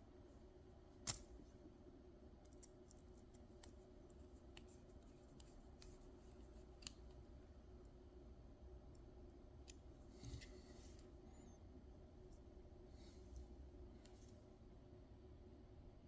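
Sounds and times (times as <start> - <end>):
low steady hum: 0.0 - 16.0
small parts clicking: 2.4 - 3.8.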